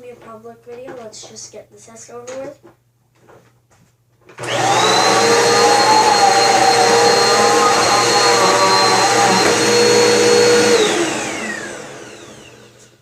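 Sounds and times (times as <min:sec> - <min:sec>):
vacuum cleaner motor whining: 0:04.4 - 0:13.0.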